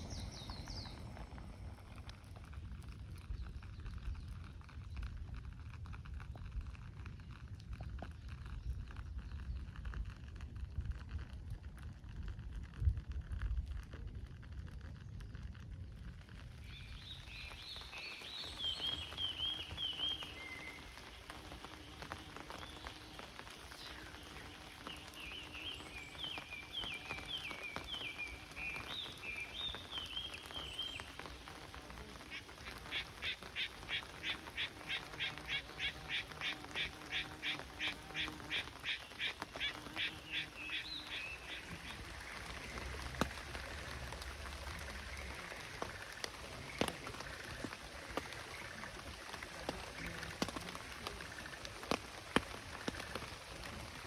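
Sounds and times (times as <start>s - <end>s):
small birds chirping: 0.0s - 12.8s, 13.7s - 54.0s.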